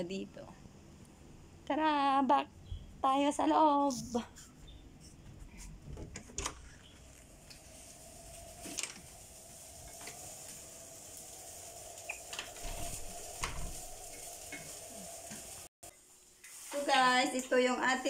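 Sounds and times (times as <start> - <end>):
rice sizzling in a pan: 6.8 - 18.0.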